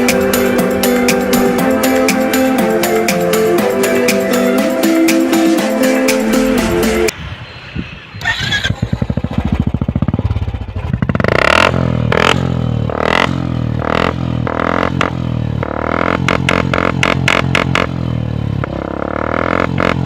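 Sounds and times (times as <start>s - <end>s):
motorcycle engine revving: 8.2s - 20.0s.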